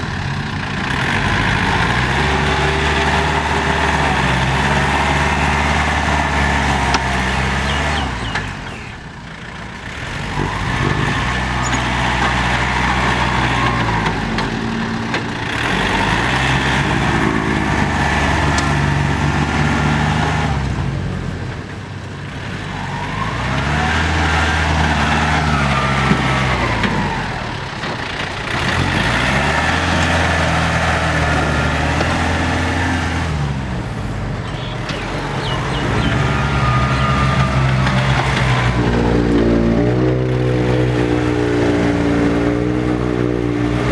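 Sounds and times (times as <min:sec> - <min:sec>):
tractor engines under load: 0:00.0 - 0:43.9.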